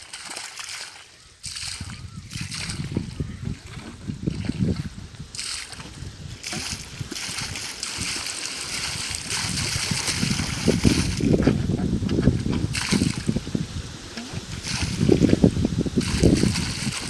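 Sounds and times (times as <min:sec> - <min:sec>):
water gushing from pipes: 0:00.0 - 0:17.0.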